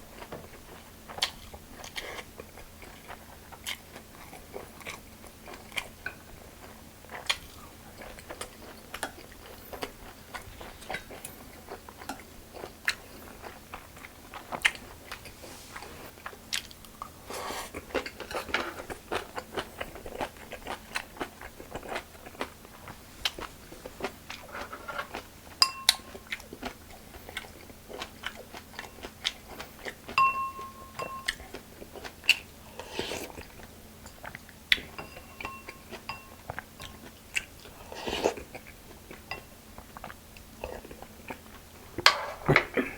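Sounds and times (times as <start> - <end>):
man chewing and crunching food: 0.0 - 42.9
ringing clinks: 30.2 - 31.4, 35.0 - 36.4.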